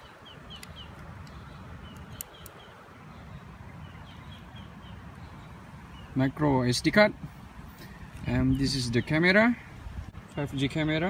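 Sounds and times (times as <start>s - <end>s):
small bird chirping: 0.0s - 6.2s
light click: 0.5s - 2.6s.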